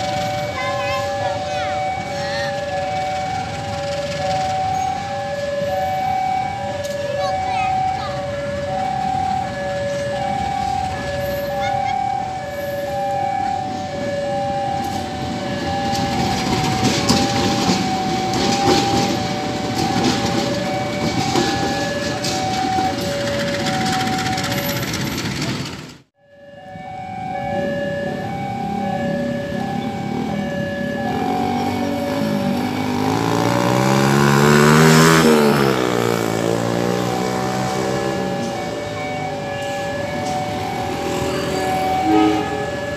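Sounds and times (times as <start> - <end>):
train rumbling past: 0.0 - 11.6, 12.2 - 26.1, 26.8 - 42.9
two-tone level crossing alarm: 0.0 - 25.5, 26.2 - 42.9
wheels clicking over rail joints: 13.4 - 26.0
vehicle engine revving: 28.3 - 39.2.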